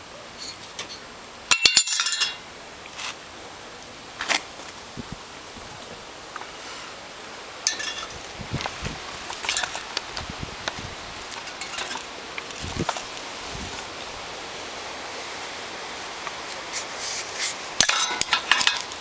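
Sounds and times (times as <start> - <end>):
metal spokes clinking: 0.4 - 2.5, 7.6 - 10.0, 11.2 - 14.1, 17.8 - 19.0.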